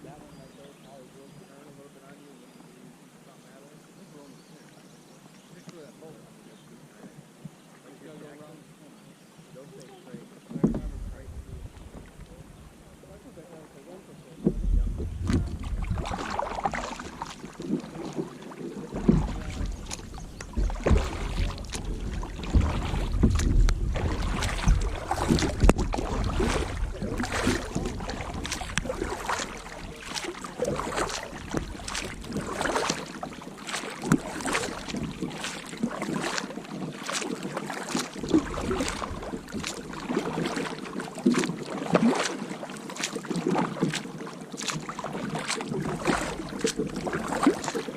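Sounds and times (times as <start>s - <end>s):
paddle splashing in water: 0.0s - 47.9s
wind rumbling on microphone: 10.1s - 18.0s, 18.8s - 36.4s, 38.2s - 40.3s.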